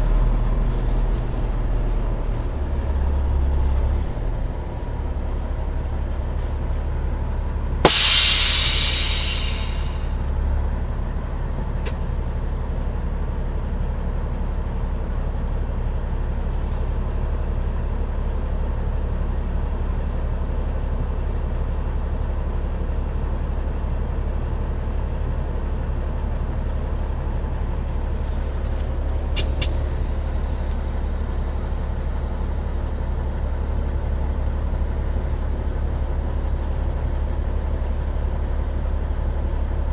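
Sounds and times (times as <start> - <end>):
air brakes hissing: 7.9 - 10.1, 28.0 - 37.7
diesel truck engine running: 7.9 - 10.1, 28.1 - 38.8.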